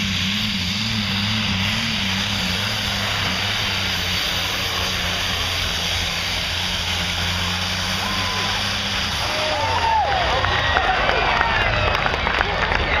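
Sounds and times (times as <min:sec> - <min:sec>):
tractor engine drone: 0:00.0 - 0:13.0.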